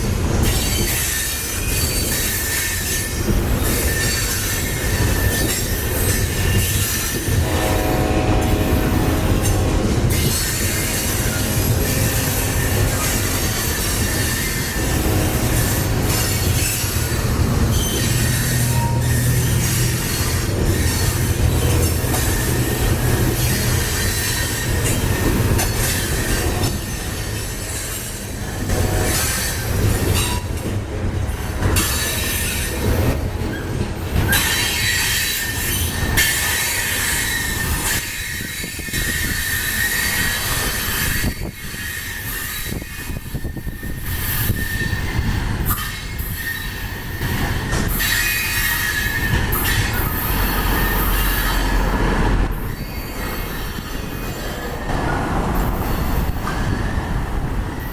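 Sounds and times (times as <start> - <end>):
train wheels squealing on rail: 0.0 - 57.9.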